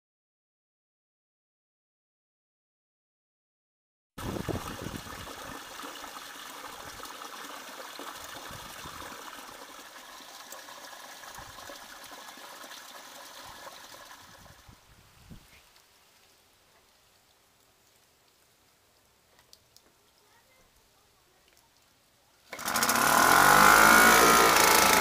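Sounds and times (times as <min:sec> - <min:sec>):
rushing trickling water: 0:04.2 - 0:14.8, 0:22.5 - 0:25.0.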